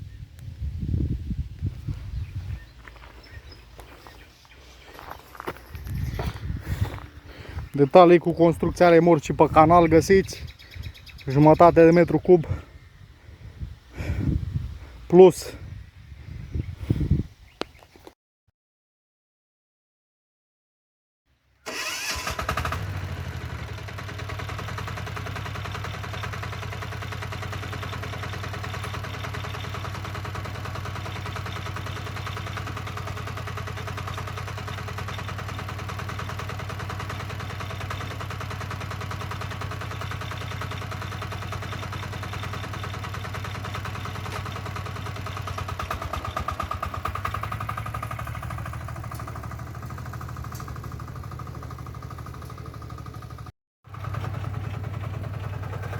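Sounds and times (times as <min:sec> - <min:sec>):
diesel tractor engine running: 0:00.9 - 0:15.3, 0:21.7 - 0:55.9.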